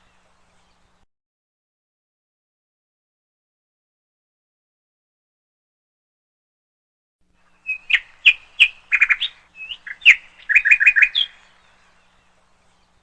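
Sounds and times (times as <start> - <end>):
songbird chirping and twittering: 0.0 - 1.1, 7.4 - 13.0.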